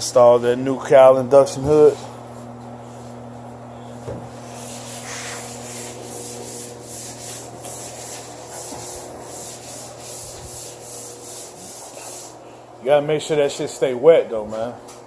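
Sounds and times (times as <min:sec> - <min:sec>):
steady low hum: 0:00.0 - 0:15.0
sandpaper rubbing on metal panel: 0:04.4 - 0:12.4.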